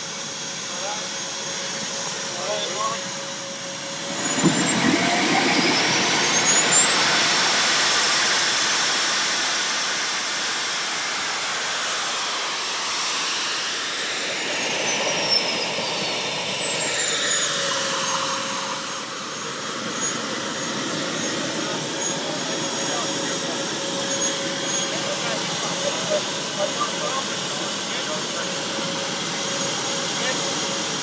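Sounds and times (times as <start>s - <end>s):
model jet turbine whine: 0.0s - 31.0s
exhaust roar: 2.0s - 9.9s.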